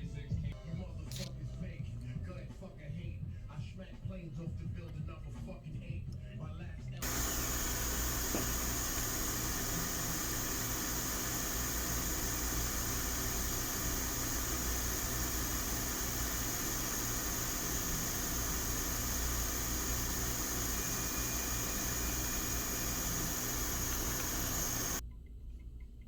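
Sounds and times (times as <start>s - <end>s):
fan blowing with low hum: 7.0s - 25.0s.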